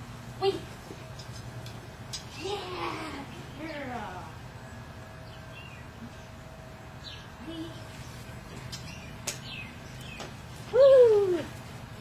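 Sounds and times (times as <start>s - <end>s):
small birds chirping: 3.2s - 10.9s.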